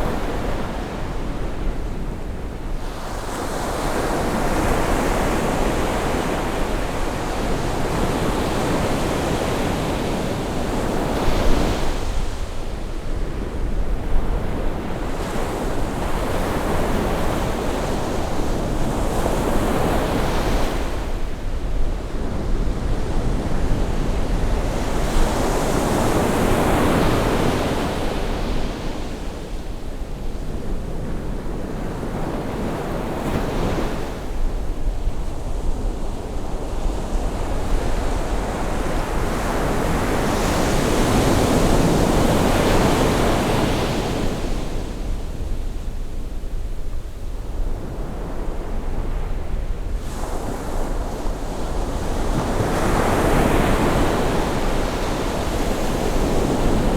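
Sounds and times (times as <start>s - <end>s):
ocean waves breaking on shore: 48.0s - 56.9s.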